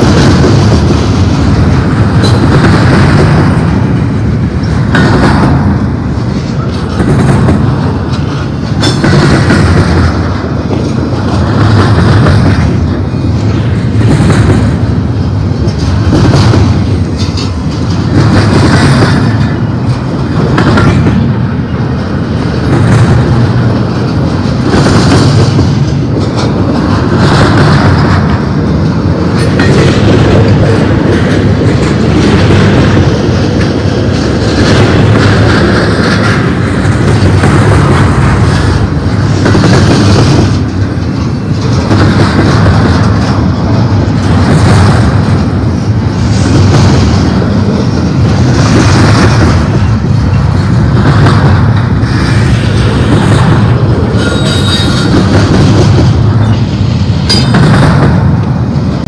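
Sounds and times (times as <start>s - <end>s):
freight train wheels rumbling on rail: 0.0s - 59.0s.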